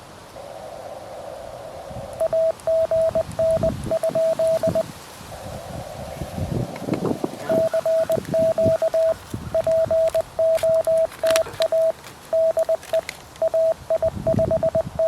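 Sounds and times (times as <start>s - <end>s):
faint background noise: 0.0s - 15.0s
morse code beeps: 2.2s - 4.9s, 7.4s - 15.0s.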